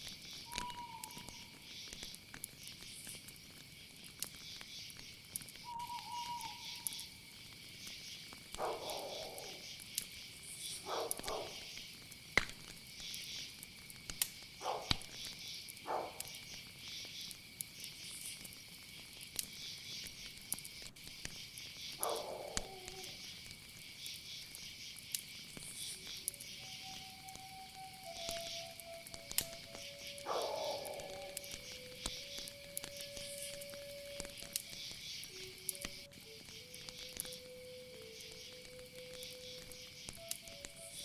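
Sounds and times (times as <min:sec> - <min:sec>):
crickets and insects trilling: 0:00.0 - 0:41.0
whistled note: 0:00.5 - 0:01.3, 0:05.7 - 0:06.9, 0:26.6 - 0:30.2.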